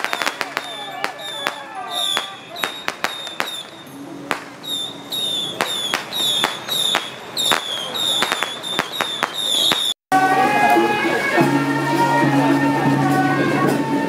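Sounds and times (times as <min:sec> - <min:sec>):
firecrackers banging: 0:00.0 - 0:10.0.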